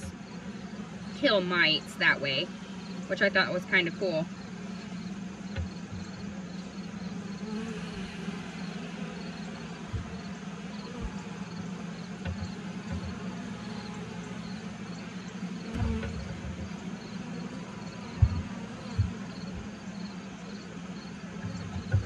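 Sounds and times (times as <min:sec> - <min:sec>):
honeybees buzzing: 0:00.0 - 0:22.0
soft low thumps: 0:05.5 - 0:06.4, 0:09.4 - 0:19.8, 0:21.3 - 0:22.0.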